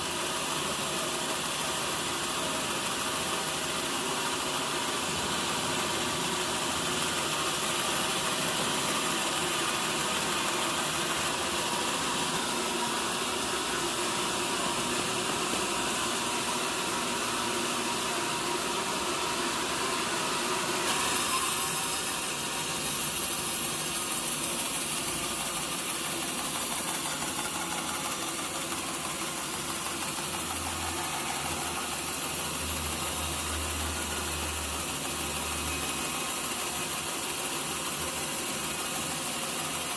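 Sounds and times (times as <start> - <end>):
sawmill saw cutting wood: 19.4 - 37.6.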